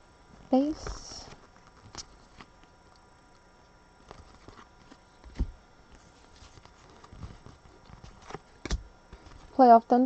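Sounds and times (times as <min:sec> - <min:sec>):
cards clicking and tapping: 0:06.6 - 0:09.4.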